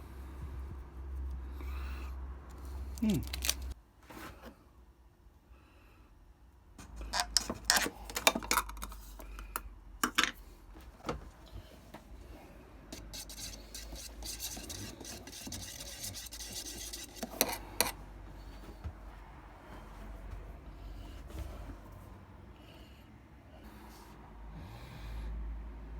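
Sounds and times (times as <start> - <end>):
rubbing on metal: 13.0 - 18.0.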